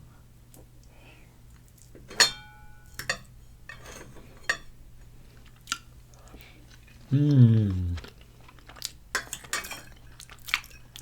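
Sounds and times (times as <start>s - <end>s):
utensils clinking against dishes: 2.0s - 4.7s, 9.2s - 11.0s.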